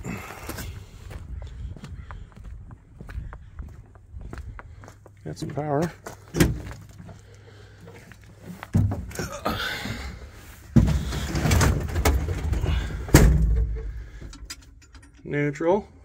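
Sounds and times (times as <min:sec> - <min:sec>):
thumps and rattling in truck cab: 0:06.3 - 0:06.9, 0:08.6 - 0:09.3, 0:10.7 - 0:14.6
rough rumbling: 0:06.5 - 0:15.4.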